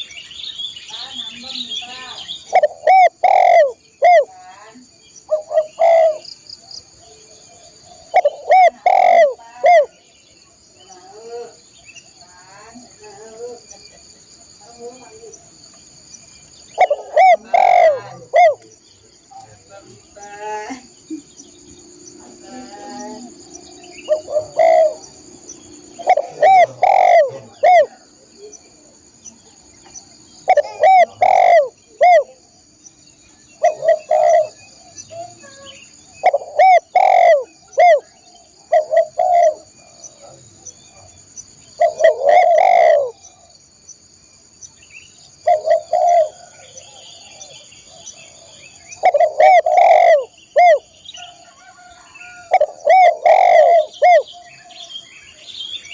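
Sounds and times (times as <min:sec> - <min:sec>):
dove cooing: 0:02.5 - 0:04.3, 0:05.3 - 0:10.0, 0:16.7 - 0:18.8, 0:20.6 - 0:29.1, 0:29.8 - 0:32.5, 0:33.6 - 0:43.5, 0:45.4 - 0:54.5.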